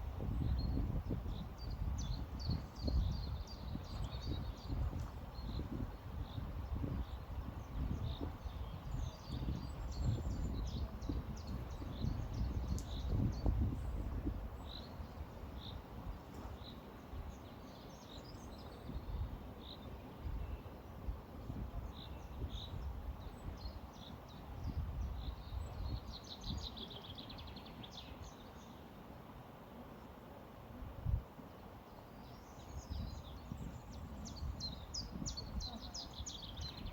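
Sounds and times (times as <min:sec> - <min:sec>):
wind rumble: 0:00.0 - 0:16.5
small birds chirping: 0:00.2 - 0:29.0, 0:31.5 - 0:36.9.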